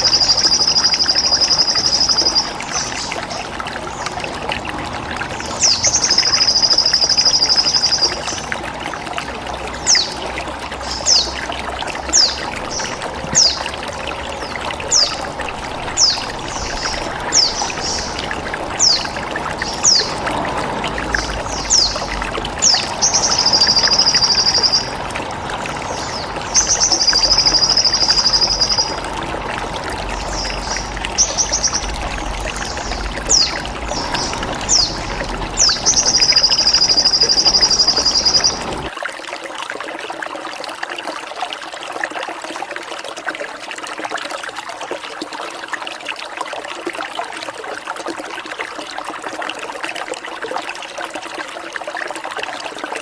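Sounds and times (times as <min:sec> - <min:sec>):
songbird chirps: 0:00.0 - 0:38.9
trickle of running water: 0:00.0 - 0:53.0.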